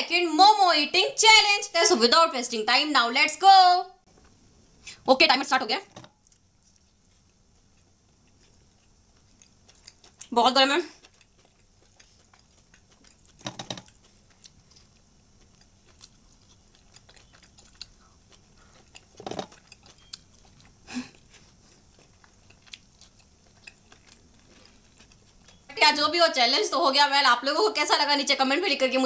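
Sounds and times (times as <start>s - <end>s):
soft chewing and biting: 6.0s - 25.7s.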